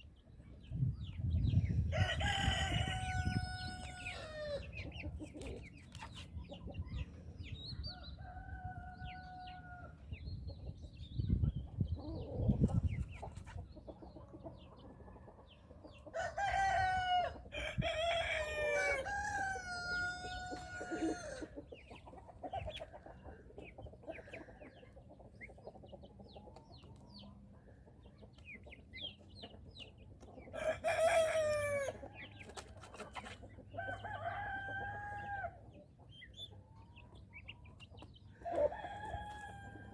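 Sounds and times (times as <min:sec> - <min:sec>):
poults peeping: 0:00.0 - 0:39.9
rooster crowing: 0:01.9 - 0:04.6, 0:16.2 - 0:21.5, 0:30.6 - 0:32.0, 0:33.9 - 0:35.6.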